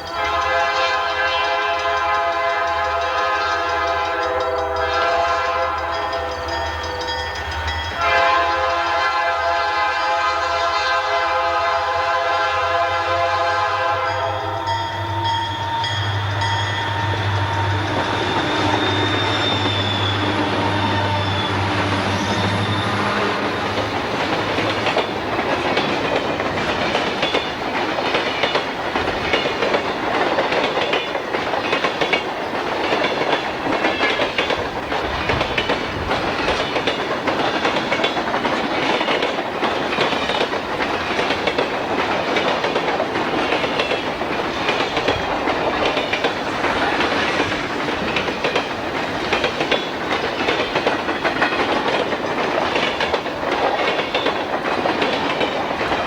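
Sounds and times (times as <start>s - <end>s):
freight train cars rolling past: 0.0s - 56.0s
wheels clicking over rail joints: 14.3s - 56.0s.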